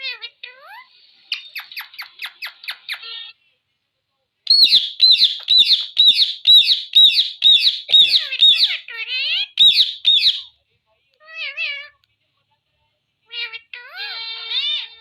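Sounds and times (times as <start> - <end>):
parrot chirping: 0.0 - 3.4, 4.5 - 10.6, 13.3 - 15.0
parrot squawking: 1.6 - 3.4, 4.5 - 10.5, 13.3 - 15.0.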